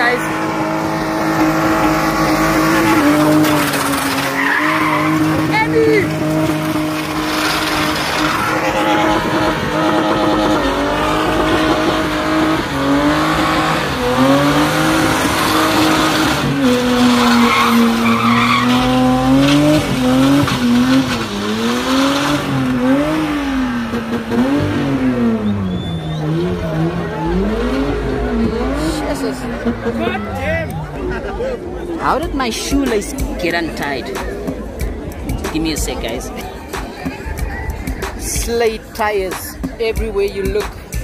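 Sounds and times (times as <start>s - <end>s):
tyres screeching: 0.0s - 23.5s
car engine revving: 0.0s - 39.8s.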